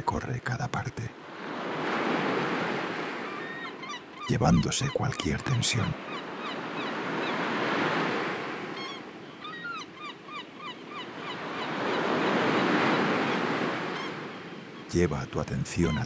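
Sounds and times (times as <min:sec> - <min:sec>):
sea waves washing onto shore: 0:01.1 - 0:09.3, 0:10.9 - 0:16.0
birds chirping: 0:03.1 - 0:16.0.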